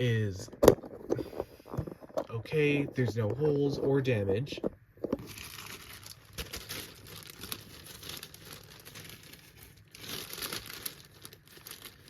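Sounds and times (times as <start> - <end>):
paper bag crinkling: 5.2 - 12.0.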